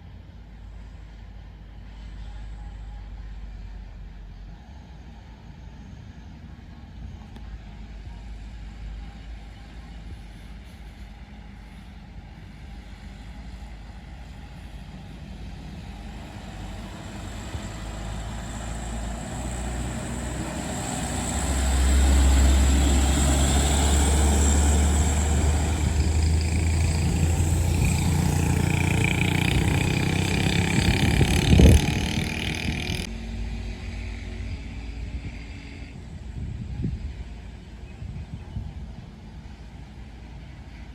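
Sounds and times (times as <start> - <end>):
truck diesel engine passing: 15.5 - 34.5.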